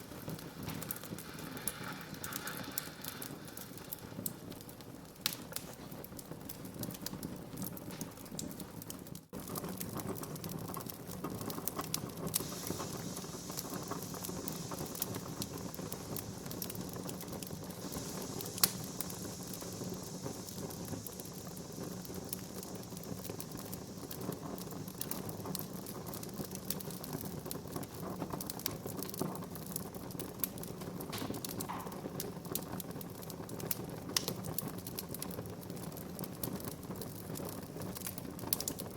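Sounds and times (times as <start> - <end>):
fire hiss: 0.0 - 38.9
wood fire crackling: 0.0 - 38.9
sharp pop: 31.1 - 32.2.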